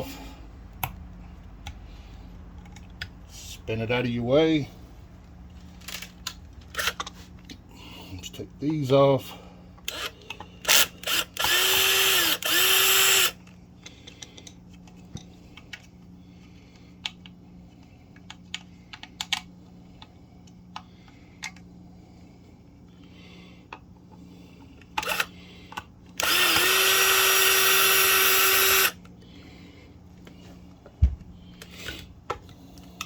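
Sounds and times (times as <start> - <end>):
clicks of handling parts and screws: 2.5 - 3.2, 5.6 - 7.6, 12.4 - 16.0, 16.7 - 21.7
power drill motor spinning: 9.8 - 13.5, 24.8 - 29.1.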